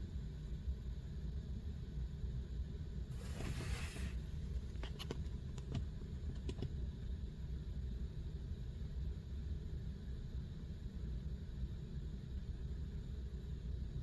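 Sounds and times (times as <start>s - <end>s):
brief rustle: 3.2s - 5.3s
light clicks and taps: 4.7s - 6.8s.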